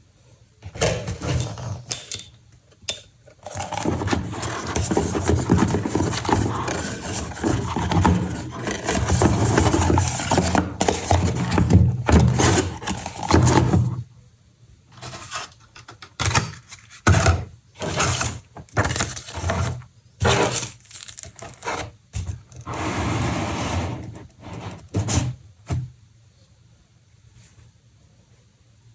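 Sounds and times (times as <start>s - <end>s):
packaging scraping and rubbing: 3.3s - 14.0s, 17.8s - 25.4s
short scrapes and rustles: 17.8s - 25.4s.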